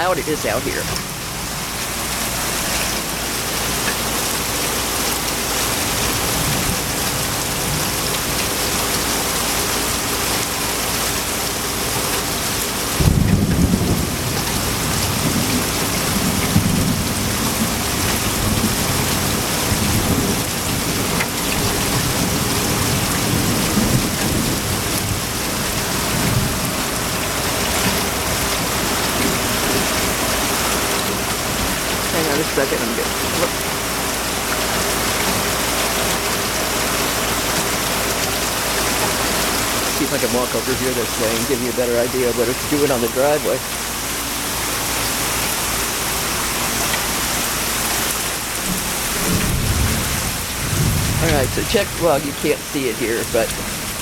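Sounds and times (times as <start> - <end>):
heavy rain pouring: 0.0 - 54.0
thunder rumbling: 48.7 - 54.0.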